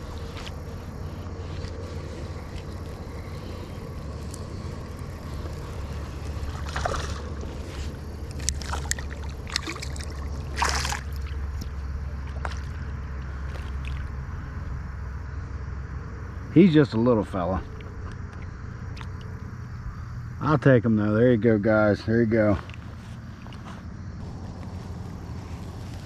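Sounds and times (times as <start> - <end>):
river water splashing: 0.0 - 14.6
low rumble: 0.0 - 16.5, 24.0 - 26.0.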